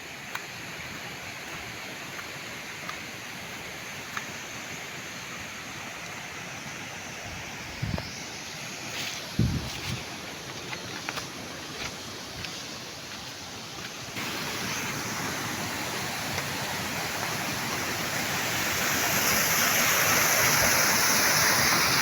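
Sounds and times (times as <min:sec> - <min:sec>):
rain hissing: 0:00.0 - 0:22.0
faint drip ticks: 0:00.3 - 0:04.4.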